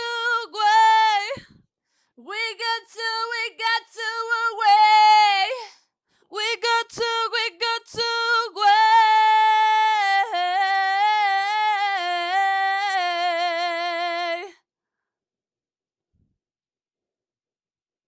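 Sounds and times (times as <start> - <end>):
woman singing unaccompanied: 0.0 - 1.6, 2.2 - 14.6.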